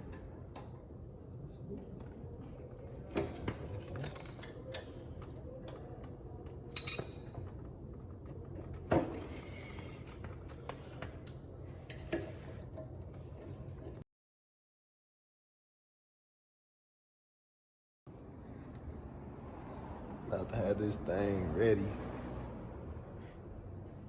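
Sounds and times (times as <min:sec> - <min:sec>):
metallic clinks and knocks: 0:03.2 - 0:04.6, 0:06.7 - 0:07.6.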